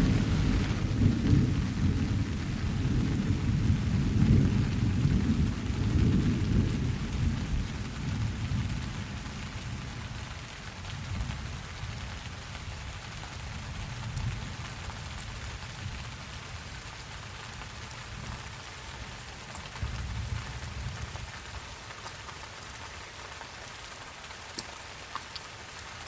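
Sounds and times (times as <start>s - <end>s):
thunder rumbling: 0.0s - 9.2s
steady rain: 0.0s - 26.0s.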